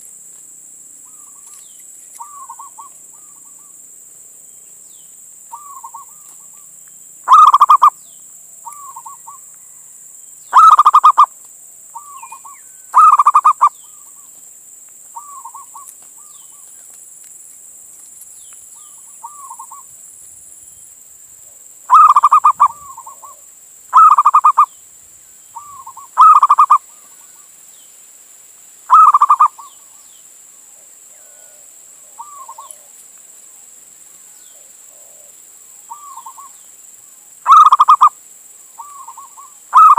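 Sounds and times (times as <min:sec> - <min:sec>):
dove cooing: 0:02.2 - 0:03.7, 0:07.3 - 0:08.0, 0:10.5 - 0:11.3, 0:12.0 - 0:14.2, 0:18.8 - 0:19.9, 0:21.9 - 0:24.7, 0:25.6 - 0:27.4, 0:28.9 - 0:29.9, 0:30.8 - 0:33.0, 0:34.5 - 0:36.6, 0:37.5 - 0:38.2, 0:38.8 - 0:39.9.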